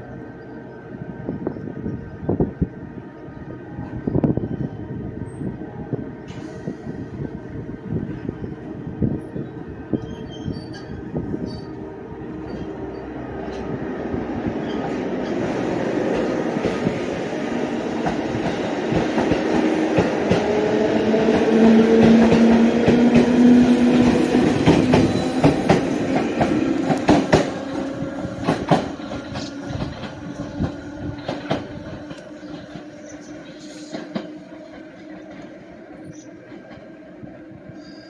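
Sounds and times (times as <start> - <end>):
train wheels clacking on rail joints: 18.0 - 35.6.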